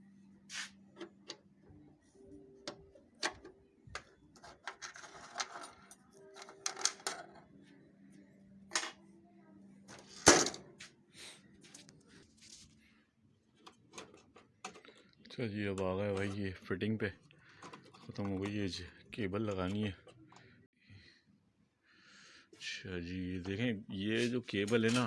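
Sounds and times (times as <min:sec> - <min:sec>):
plastic parts clicking and tapping: 0:02.6 - 0:05.7, 0:13.6 - 0:15.1, 0:17.2 - 0:20.5.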